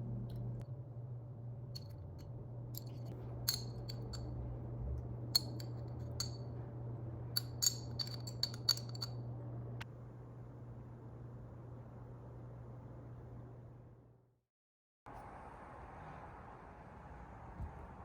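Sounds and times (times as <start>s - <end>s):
steady low hum: 0.0s - 14.3s.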